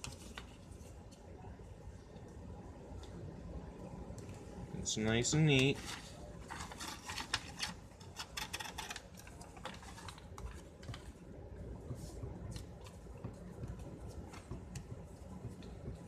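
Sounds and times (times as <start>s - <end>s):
paper being folded and creased: 0.0s - 1.2s, 5.6s - 11.2s.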